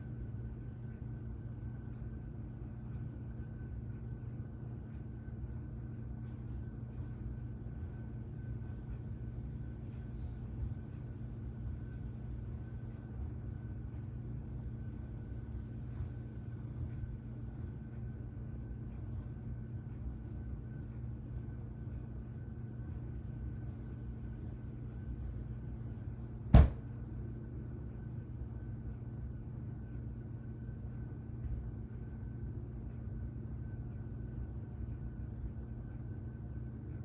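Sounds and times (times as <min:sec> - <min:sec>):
steady low hum: 0:00.0 - 0:37.0
sharp thump: 0:26.5 - 0:26.8.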